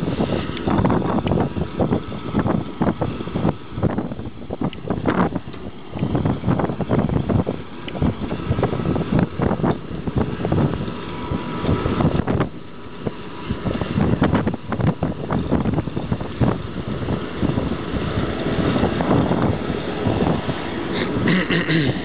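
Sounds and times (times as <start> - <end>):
low rumbling: 0.0 - 22.0
wind buffeting microphone: 0.0 - 22.0.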